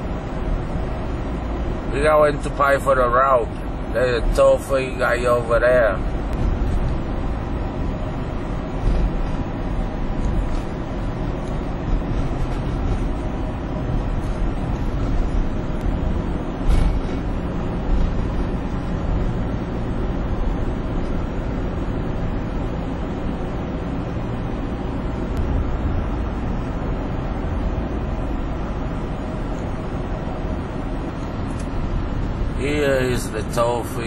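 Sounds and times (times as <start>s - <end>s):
tyre noise on highway: 0.0s - 34.0s
van engine rumble: 0.0s - 34.0s.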